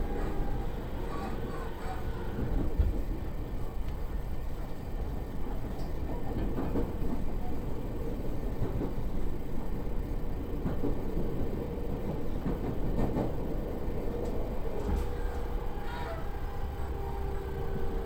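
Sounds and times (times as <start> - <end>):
wheels rumbling on rails: 0.0 - 18.0.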